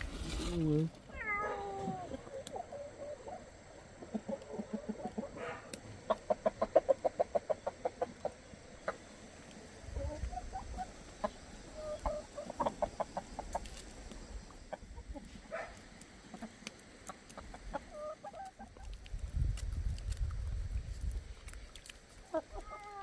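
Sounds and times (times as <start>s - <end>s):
chickens clucking: 1.5s - 23.0s.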